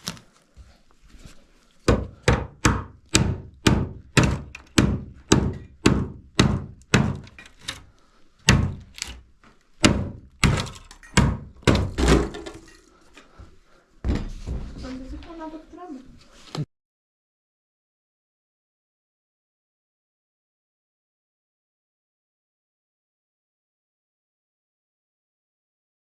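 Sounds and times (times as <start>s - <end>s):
heavy blows on wood: 1.8s - 7.4s, 8.4s - 9.1s, 9.8s - 12.7s.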